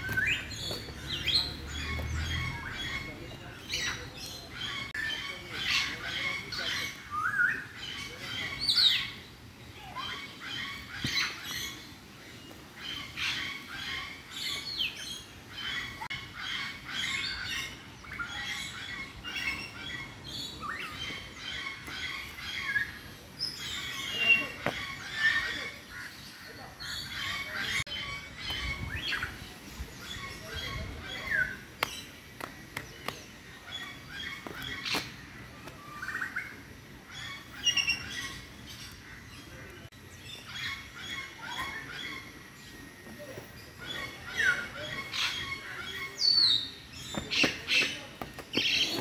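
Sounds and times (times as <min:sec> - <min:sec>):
birds chirping: 0:00.0 - 0:49.0.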